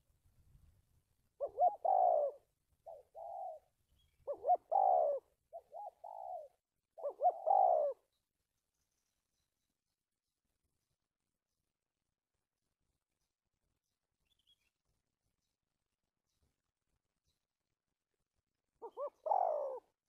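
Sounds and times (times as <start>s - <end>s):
dove cooing: 1.4s - 8.2s, 18.8s - 20.0s.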